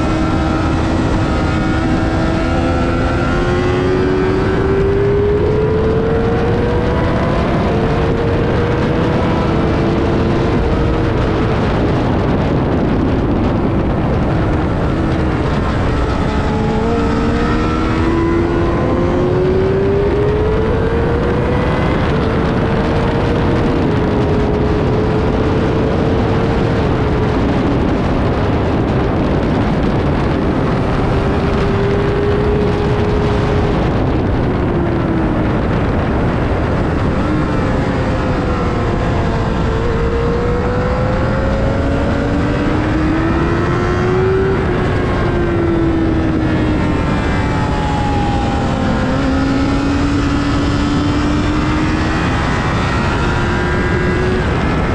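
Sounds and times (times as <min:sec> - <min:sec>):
motorcycle engine running hard: 0:00.0 - 0:54.9
wind noise: 0:00.0 - 0:54.9.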